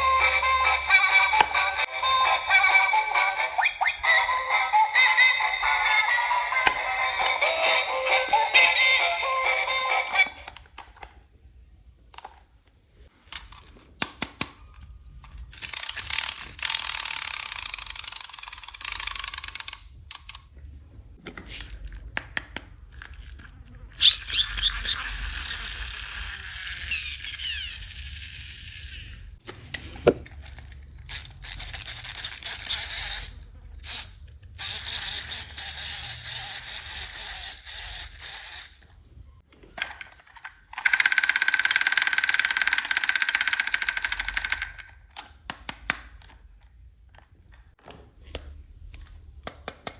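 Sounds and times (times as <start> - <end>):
plastic toy pieces clicking: 0.0 - 11.2, 13.3 - 20.5, 30.4 - 38.8, 39.8 - 47.6.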